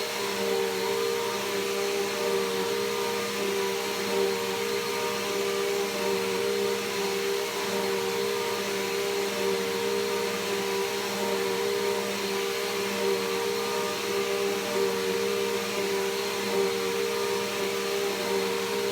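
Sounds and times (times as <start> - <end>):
vacuum cleaner running: 0.0 - 18.9.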